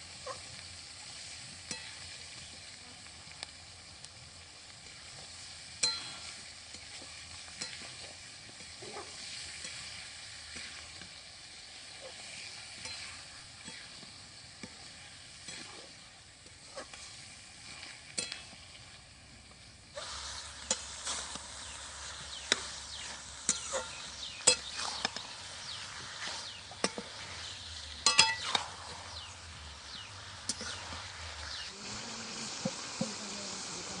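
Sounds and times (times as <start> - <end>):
meat sizzling in hot oil: 0.0 - 34.0
spatula scraping and knocking pan: 4.9 - 11.2, 12.0 - 18.8, 20.0 - 29.3, 29.9 - 31.7.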